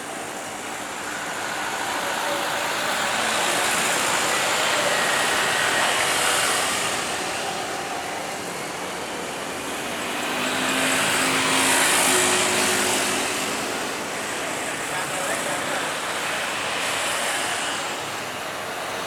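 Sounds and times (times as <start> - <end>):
vehicles passing: 9.3 - 17.8.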